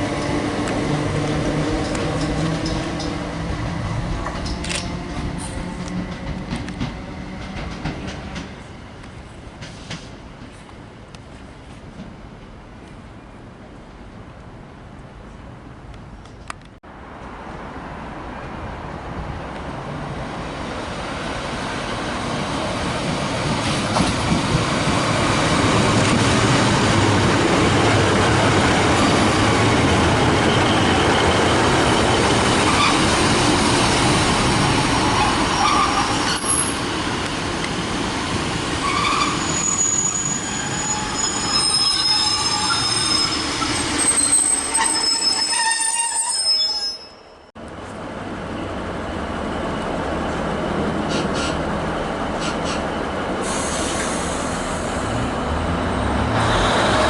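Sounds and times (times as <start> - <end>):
train rumbling past: 0.0 - 14.2, 17.0 - 46.5, 47.7 - 57.0
high-pitched wheel squeal: 38.8 - 47.5.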